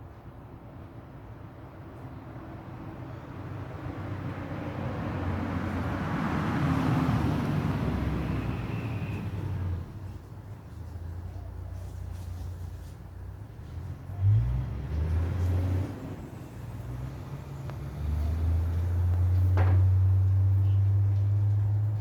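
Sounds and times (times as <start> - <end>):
vehicle passing by: 13.6 - 22.0.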